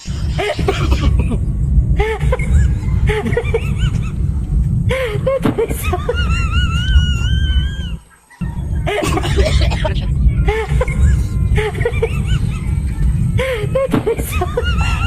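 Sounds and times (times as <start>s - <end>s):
long wavering squeal: 0.0s - 15.0s
low background hum: 0.0s - 15.0s
high-pitched snickering laughter: 8.3s - 15.0s.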